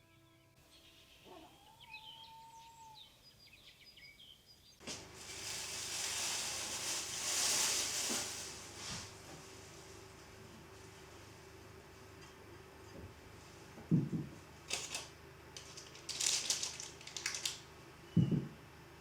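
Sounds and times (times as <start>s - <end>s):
birds chirping: 0.2s - 4.8s.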